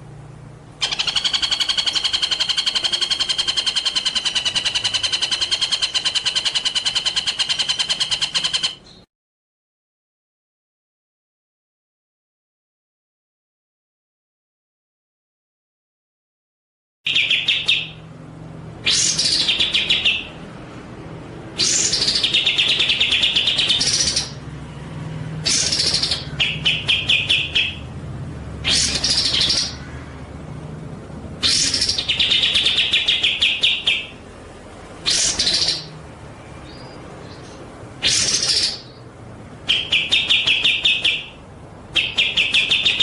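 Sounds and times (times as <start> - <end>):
songbird trilling: 0.8 - 9.0, 17.1 - 18.1, 18.8 - 20.4, 21.6 - 24.4, 25.4 - 27.9, 28.6 - 30.1, 31.4 - 34.2, 35.0 - 36.0, 36.6 - 43.0.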